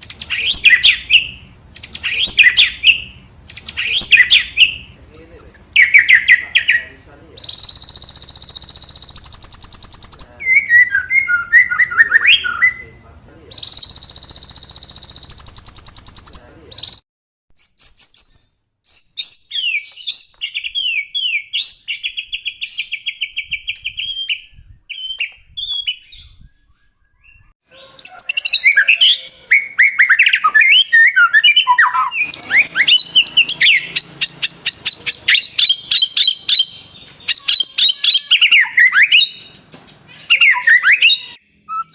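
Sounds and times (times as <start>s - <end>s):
songbird singing trills: 0.0s - 17.0s, 17.6s - 41.9s.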